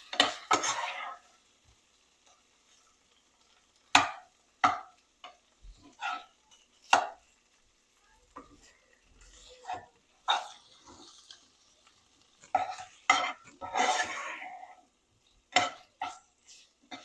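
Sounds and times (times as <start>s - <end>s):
utensils knocking on cookware: 3.9s - 7.2s, 12.5s - 14.1s, 15.5s - 16.3s.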